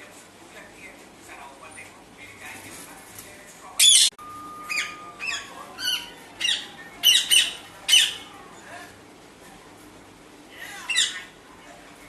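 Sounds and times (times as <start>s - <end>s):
parrot squawking: 3.8s - 8.4s, 10.7s - 11.4s.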